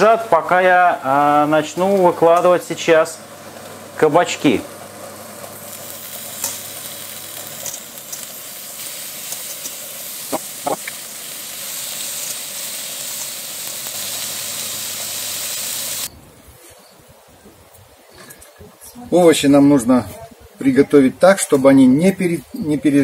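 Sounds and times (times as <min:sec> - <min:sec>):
vegetables sizzling on a grill pan: 0:00.0 - 0:16.1.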